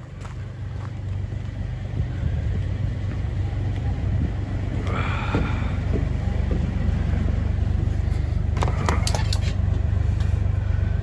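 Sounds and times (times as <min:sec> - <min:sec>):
vehicle engine rumbling: 0:00.0 - 0:11.0
sharp rattles and clicks: 0:07.8 - 0:10.4.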